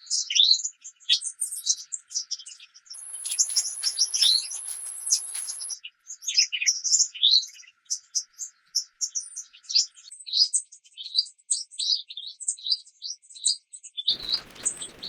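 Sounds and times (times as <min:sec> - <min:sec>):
songbirds chirping: 0:03.0 - 0:05.8, 0:14.1 - 0:15.0.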